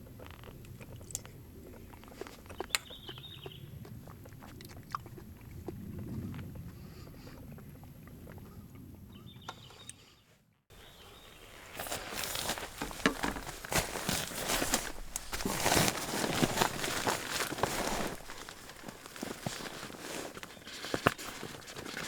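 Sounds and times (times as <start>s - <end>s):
crunching and crackling: 0.0s - 6.5s, 11.4s - 22.0s.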